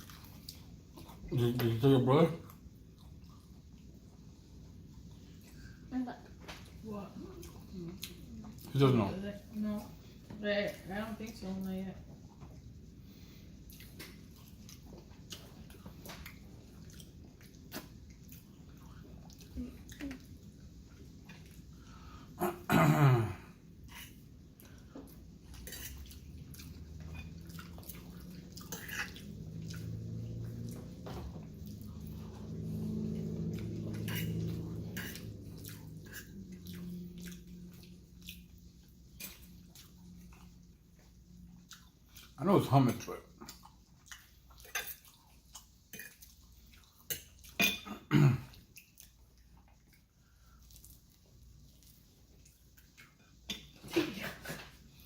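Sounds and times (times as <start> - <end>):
wet chewing sounds: 0.0 - 11.5, 12.1 - 22.4, 23.7 - 55.0
low steady hum: 0.0 - 55.0.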